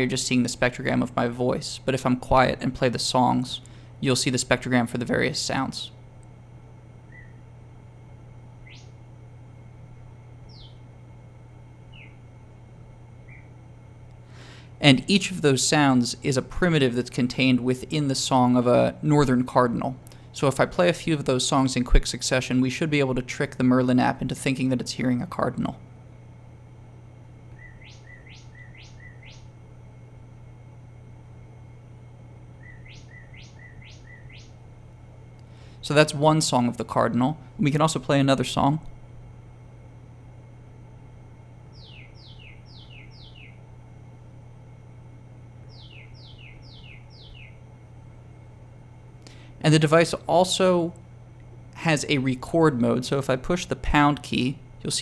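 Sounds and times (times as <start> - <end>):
steady low hum: 0.0 - 55.0
synthesized whistled birdsong notes: 7.0 - 7.5, 8.6 - 9.0, 10.4 - 10.9, 11.8 - 12.3, 13.2 - 13.6, 27.5 - 29.6, 32.5 - 34.7, 41.7 - 43.6, 45.6 - 47.6.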